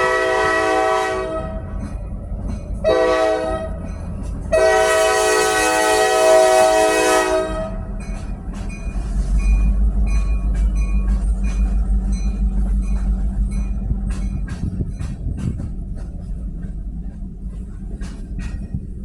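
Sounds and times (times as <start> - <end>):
train horn: 0.0 - 1.8, 2.8 - 3.9, 4.5 - 7.9
train rolling past: 0.0 - 19.0
train wheel squeals: 7.9 - 15.9.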